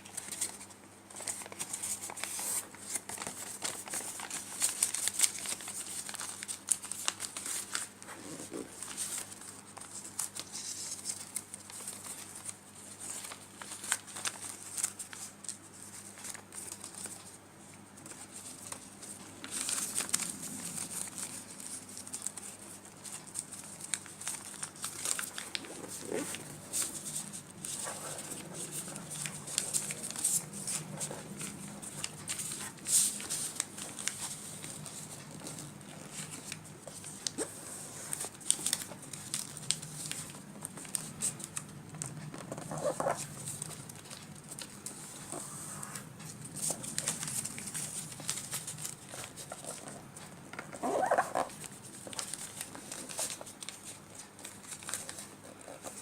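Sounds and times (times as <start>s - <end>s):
paper crinkling and rustling: 0.0s - 56.0s.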